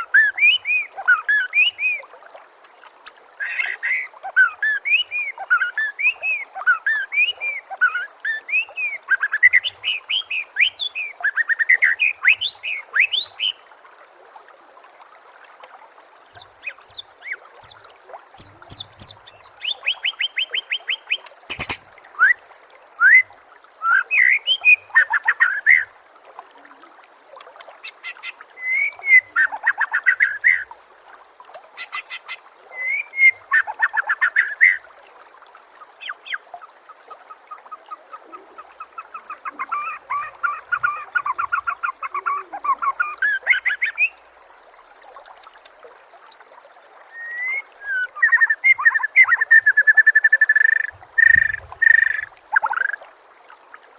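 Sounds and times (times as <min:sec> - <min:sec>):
songbird whistles and trills: 0:00.0 - 0:02.0, 0:03.4 - 0:13.6, 0:16.3 - 0:22.4, 0:23.0 - 0:25.9, 0:27.8 - 0:30.7, 0:31.8 - 0:34.8, 0:38.1 - 0:44.2, 0:47.1 - 0:53.0
faint trickle of water: 0:00.0 - 0:53.9.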